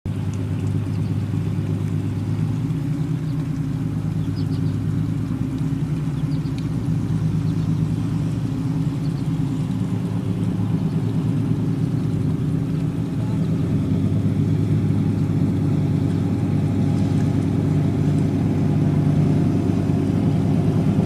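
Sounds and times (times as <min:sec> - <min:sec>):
boat engine droning: 0:00.1 - 0:21.0.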